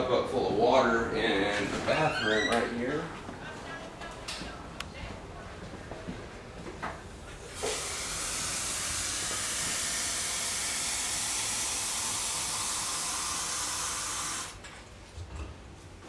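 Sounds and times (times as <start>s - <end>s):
tap water filling a cup: 7.5s - 14.6s.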